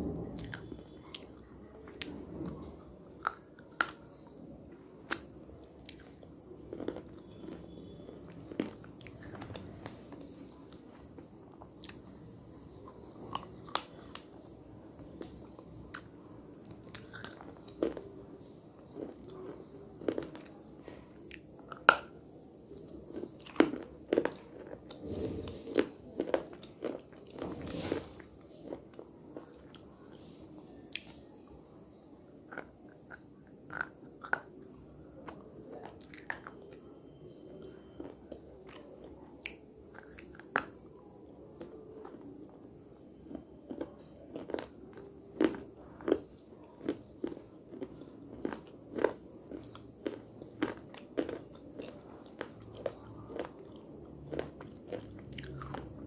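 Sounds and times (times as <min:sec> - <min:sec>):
person biting and chewing crunchy clay: 0:05.0 - 0:09.8, 0:43.3 - 0:56.0.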